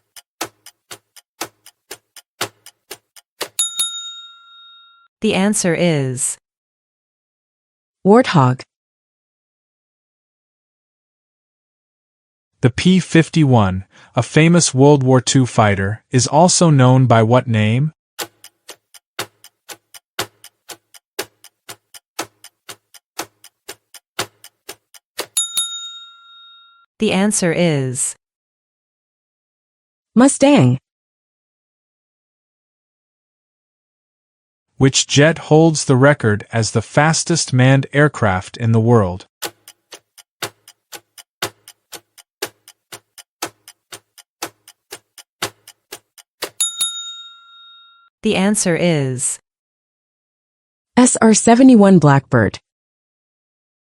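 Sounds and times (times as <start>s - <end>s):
clock-like timer ticking: 0.0s - 4.0s, 18.2s - 25.9s, 39.4s - 47.0s
bell dinging: 3.6s - 5.1s, 25.4s - 26.8s, 46.6s - 48.1s.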